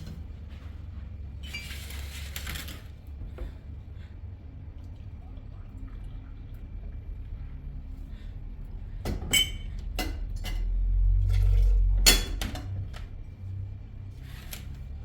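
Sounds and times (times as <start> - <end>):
dishes clinking and knocking: 9.1 - 12.8.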